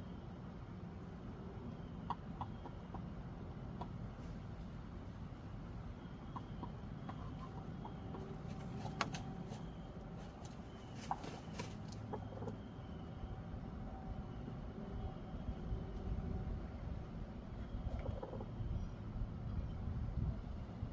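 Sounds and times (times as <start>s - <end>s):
steady low rumble: 0.0s - 20.9s
chickens clucking softly: 1.1s - 13.3s, 17.5s - 18.9s.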